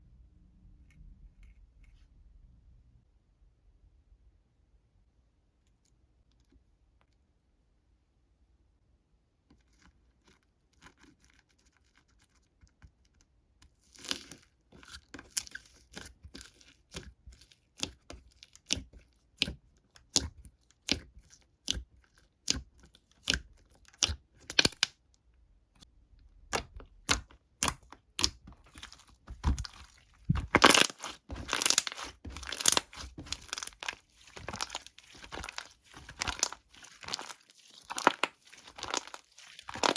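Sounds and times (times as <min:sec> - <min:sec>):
crinkly material tearing and crumpling: 0:28.5 - 0:39.9.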